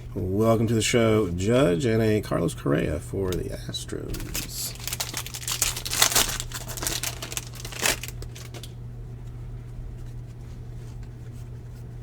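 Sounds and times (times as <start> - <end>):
low electrical hum: 0.0 - 12.0
foil wrapper crinkling: 4.1 - 8.8.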